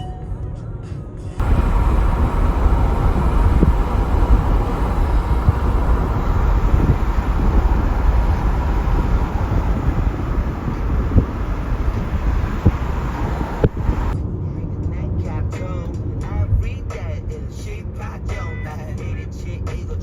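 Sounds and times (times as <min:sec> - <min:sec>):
vehicle road noise rumble: 0:01.4 - 0:14.2.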